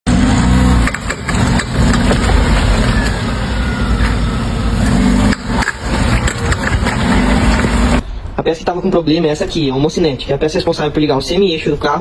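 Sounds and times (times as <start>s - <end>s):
car engine running: 0.1s - 8.0s.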